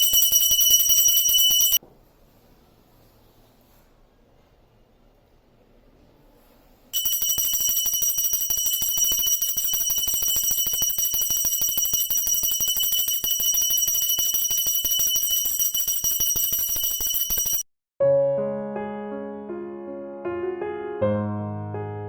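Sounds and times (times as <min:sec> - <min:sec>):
hand bell rung rapidly: 0:00.0 - 0:01.8, 0:07.0 - 0:17.7.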